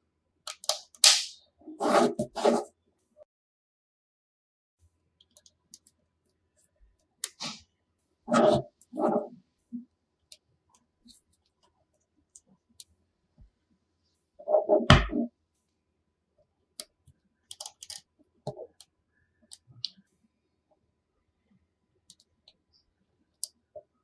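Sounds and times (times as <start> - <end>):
magnetic pieces clicking together: 17.5 - 18.1.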